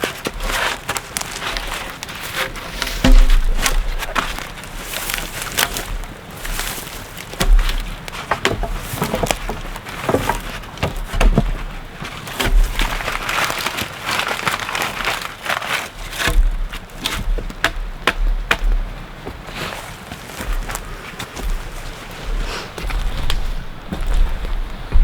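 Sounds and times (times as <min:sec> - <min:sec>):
wooden logs knocking: 0:00.0 - 0:15.2, 0:16.0 - 0:25.0
branches snapping and crackling: 0:00.0 - 0:25.0
low rumbling bursts: 0:01.6 - 0:06.8, 0:20.4 - 0:25.0.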